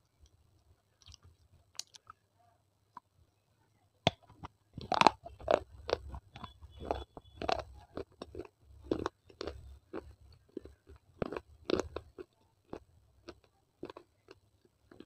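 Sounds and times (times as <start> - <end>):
crisp crunching chewing: 4.8 - 15.0.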